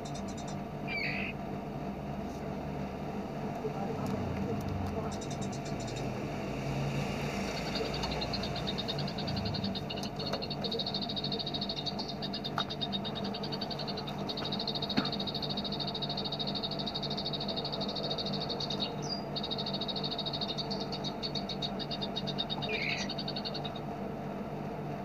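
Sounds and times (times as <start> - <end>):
bird rattling trill: 0.0 - 1.4, 5.0 - 6.1, 7.4 - 23.9
steady low hum: 0.0 - 25.0.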